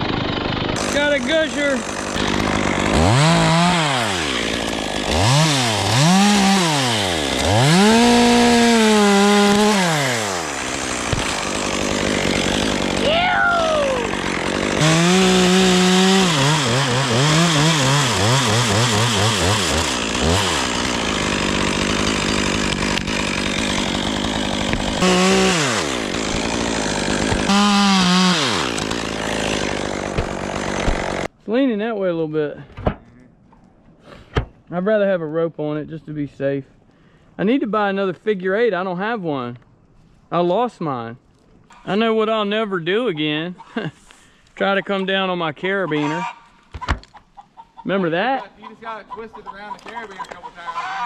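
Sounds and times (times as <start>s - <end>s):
chainsaw revving and cutting wood: 0.0s - 31.3s.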